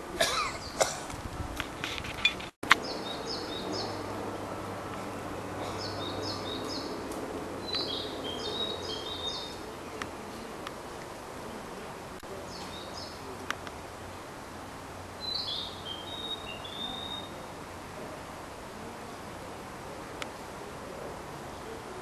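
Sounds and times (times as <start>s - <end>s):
background hiss: 0.0s - 22.0s
songbird singing: 0.0s - 22.0s.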